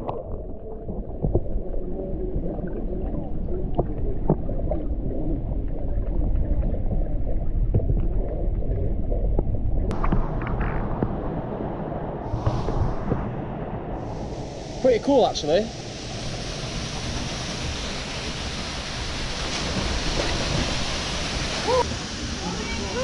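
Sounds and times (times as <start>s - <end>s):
underwater clicks and ticks: 0.0s - 11.2s
muffled underwater rumble: 0.0s - 14.9s.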